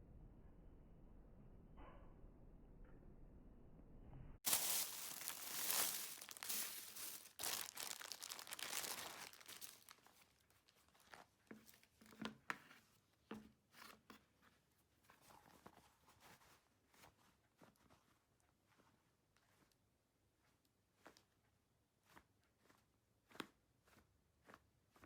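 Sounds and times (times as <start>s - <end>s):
crinkling and rustling handling: 4.4s - 19.9s.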